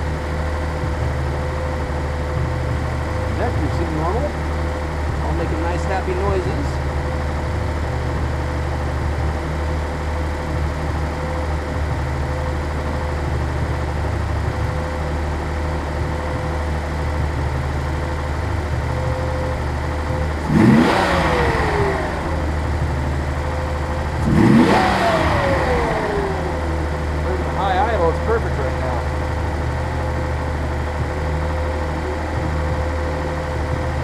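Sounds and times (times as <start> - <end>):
car engine idling and revving: 0.0 - 34.0.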